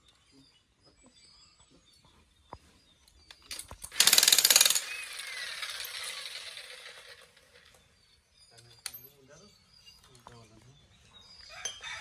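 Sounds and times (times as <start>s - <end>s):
power tool rattling and whining: 3.8s - 7.9s.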